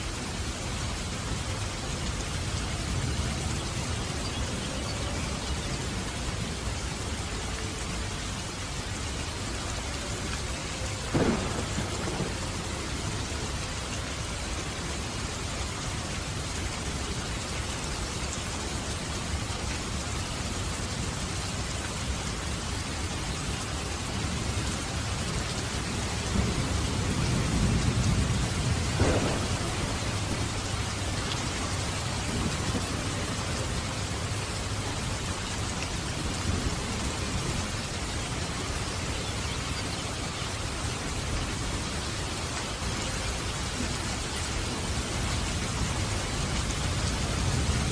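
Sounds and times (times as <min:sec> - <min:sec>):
heavy rain: 0:00.0 - 0:47.9
thunder rumble and crack: 0:11.0 - 0:14.6, 0:25.9 - 0:37.8.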